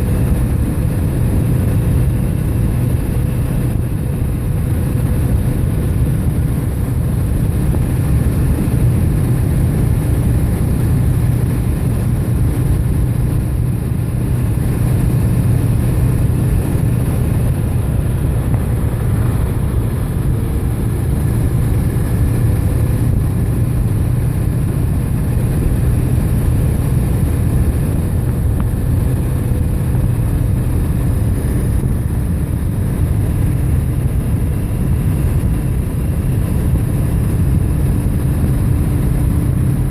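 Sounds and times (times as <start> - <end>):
bike road rumble: 0.0 - 39.9.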